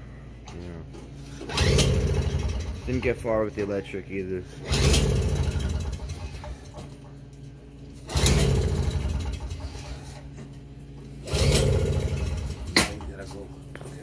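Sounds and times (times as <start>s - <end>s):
snowblower engine cranking: 1.5s - 3.5s, 4.6s - 6.9s, 8.0s - 10.3s, 11.2s - 13.3s.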